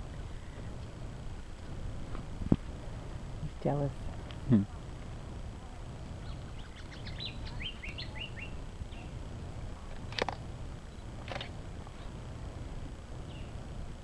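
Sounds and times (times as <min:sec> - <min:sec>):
low outdoor rumble: 0:00.0 - 0:14.0
small bird chirping: 0:06.1 - 0:09.2, 0:13.2 - 0:13.6.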